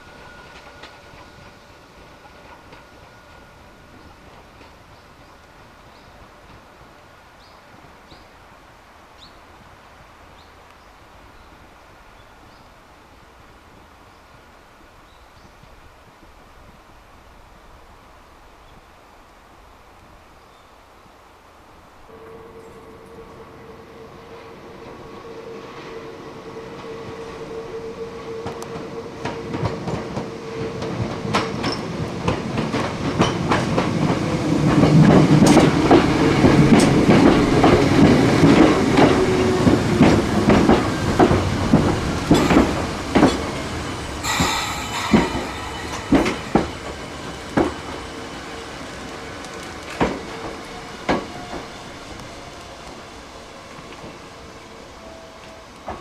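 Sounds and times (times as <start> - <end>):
electric train passing: 0.0 - 7.8, 21.8 - 56.0
wheel clacks over rail joints: 40.0 - 47.8
brief high screech: 44.2 - 47.6.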